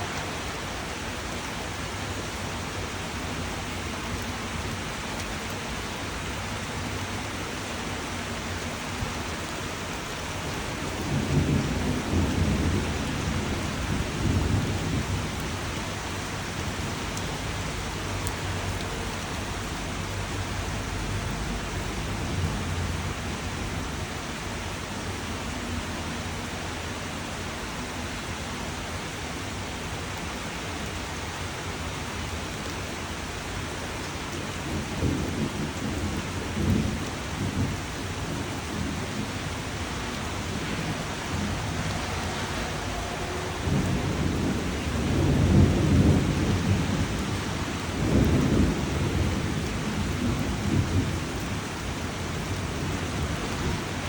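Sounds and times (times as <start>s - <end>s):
steady rain falling: 0.0s - 54.0s
rolling thunder: 10.5s - 18.2s, 34.7s - 54.0s.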